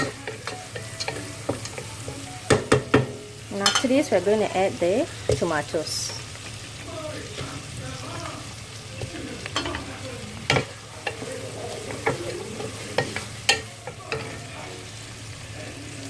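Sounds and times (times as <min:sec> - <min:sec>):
spoon knocking against pan: 0:00.0 - 0:03.9, 0:10.5 - 0:14.4
onions sizzling in hot oil: 0:00.0 - 0:16.0.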